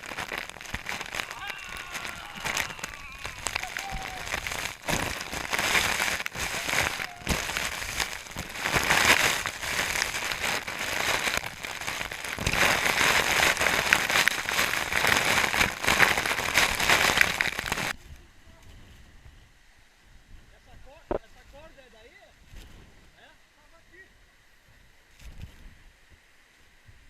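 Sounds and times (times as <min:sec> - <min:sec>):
waterfall hissing: 0:00.0 - 0:17.9.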